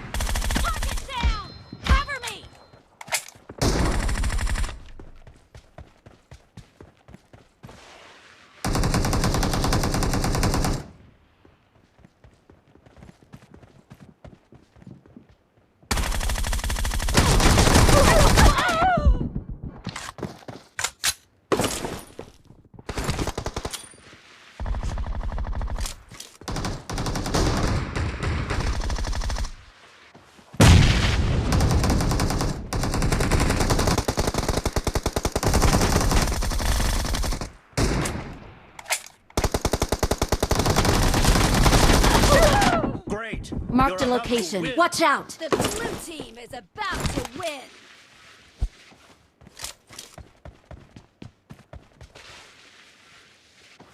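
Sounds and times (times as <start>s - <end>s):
video game automatic gunfire: 8.6s - 10.9s, 15.9s - 18.4s, 26.5s - 29.6s, 31.5s - 37.5s, 39.4s - 42.6s.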